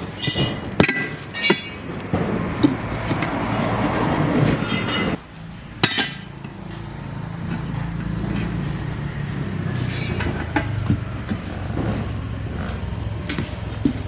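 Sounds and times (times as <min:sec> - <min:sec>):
sharp metallic clink: 0:04.6 - 0:06.4
engine idling: 0:05.2 - 0:14.0.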